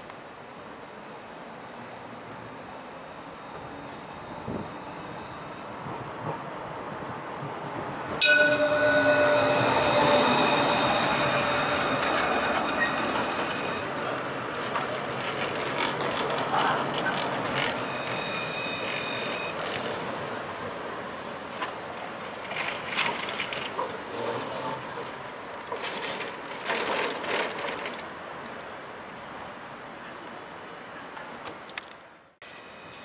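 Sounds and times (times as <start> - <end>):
tram rolling past: 0.2 - 31.6, 32.4 - 33.0
tram wheels squealing on rails: 1.6 - 6.8, 8.2 - 28.2, 32.4 - 33.0.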